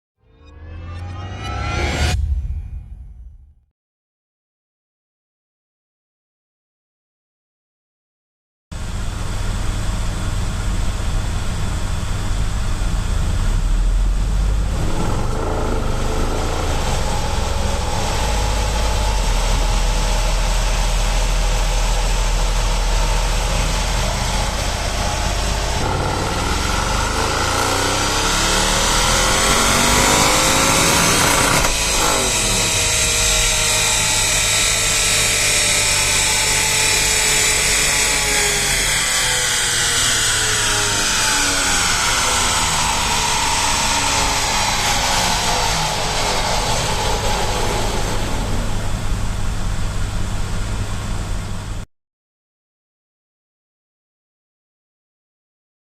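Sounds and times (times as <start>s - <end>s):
car engine accelerating hard: 9.7s - 51.8s.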